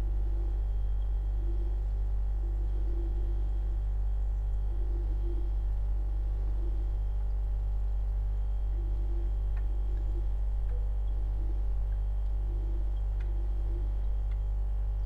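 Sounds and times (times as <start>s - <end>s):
refrigerator humming: 0.0s - 15.0s
faint ticks: 0.4s - 1.8s, 4.3s - 5.8s, 8.7s - 15.0s.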